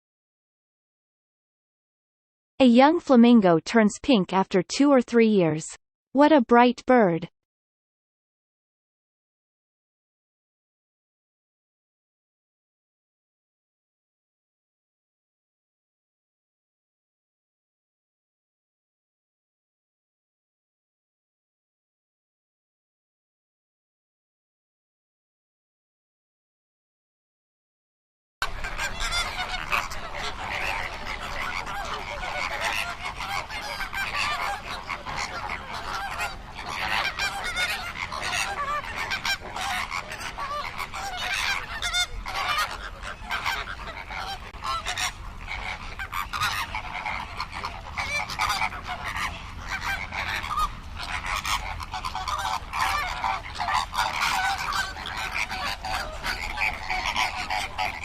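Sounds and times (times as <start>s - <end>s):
flamingos honking: 28.4s - 58.0s.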